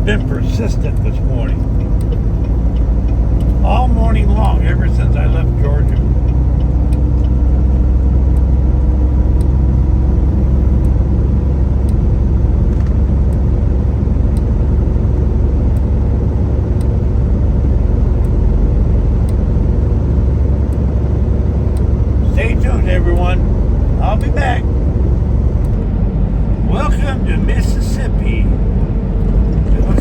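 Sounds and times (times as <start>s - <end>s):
diesel engine drone: 0.0s - 30.0s
road noise: 0.0s - 30.0s
faint light ticks: 0.1s - 5.2s, 5.8s - 9.6s, 10.8s - 11.0s, 11.8s - 12.0s, 19.2s - 19.5s, 21.7s - 21.9s.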